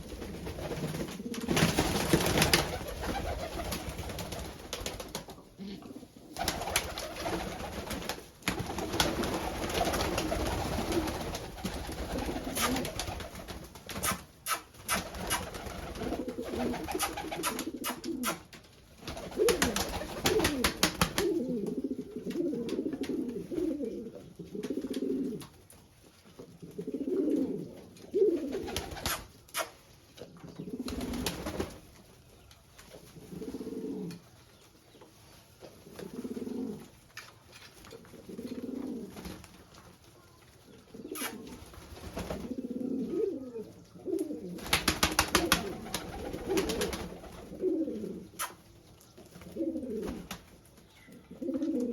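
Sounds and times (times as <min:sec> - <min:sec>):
pigeons cooing: 0:05.4 - 0:08.0, 0:08.6 - 0:13.3, 0:14.0 - 0:18.5, 0:19.1 - 0:25.5, 0:26.4 - 0:31.6, 0:33.2 - 0:34.3, 0:35.8 - 0:36.9, 0:37.9 - 0:39.3, 0:40.7 - 0:48.6, 0:49.4 - 0:50.3, 0:51.0 - 0:51.9.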